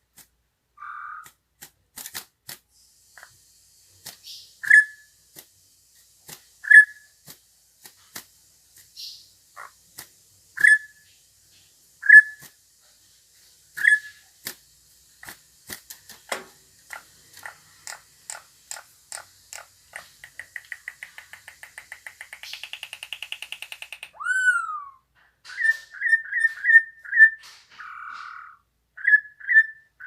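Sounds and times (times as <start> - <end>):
songbird chirping and trilling: 0.8 - 1.3, 4.2 - 5.1, 6.6 - 7.1, 10.6 - 11.2, 12.0 - 12.5, 13.8 - 14.3, 16.9 - 30.0.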